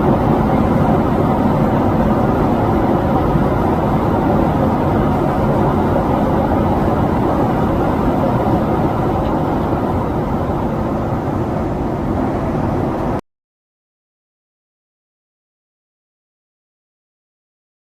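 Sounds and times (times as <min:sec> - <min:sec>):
jet engine rumble: 0:00.0 - 0:13.2.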